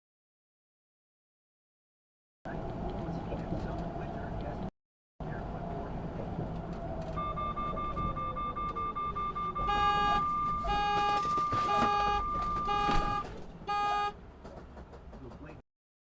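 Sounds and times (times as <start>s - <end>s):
high-pitched electronic beep: 7.2s - 13.2s
car horn blasts: 9.2s - 14.2s.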